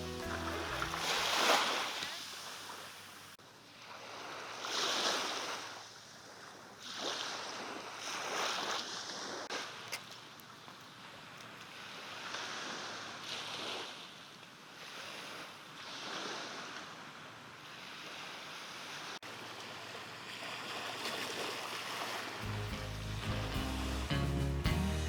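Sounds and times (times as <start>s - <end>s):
music: 0.0s - 1.4s, 22.4s - 25.0s
small waves washing on shore: 0.0s - 24.1s.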